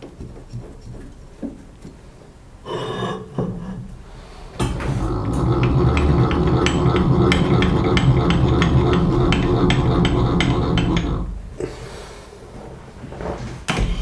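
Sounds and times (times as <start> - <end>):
machine tool cutting steel: 4.7 - 11.3.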